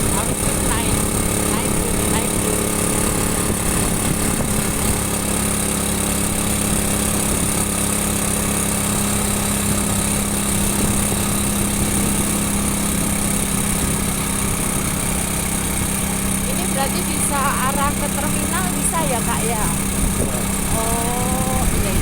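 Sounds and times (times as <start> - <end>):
wind noise: 0.0 - 5.1, 19.7 - 22.0
motorcycle engine droning: 0.0 - 22.0
road noise: 0.0 - 22.0.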